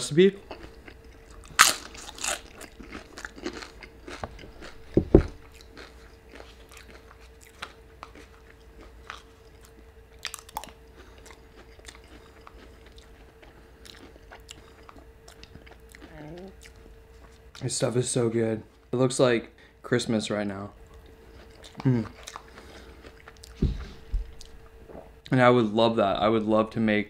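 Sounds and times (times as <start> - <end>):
faint steady hum: 0.0 - 27.0
crunchy chewing of chip: 0.4 - 17.7, 20.9 - 23.6
loud low thump: 4.9 - 5.4.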